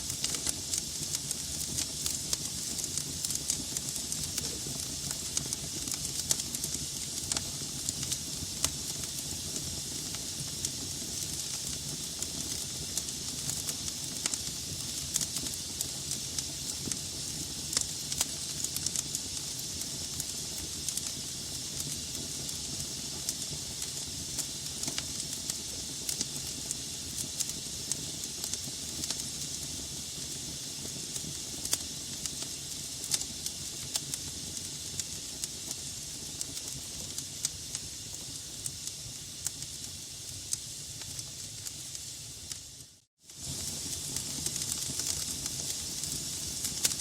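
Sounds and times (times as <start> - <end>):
log fire crackling: 0.0 - 47.0.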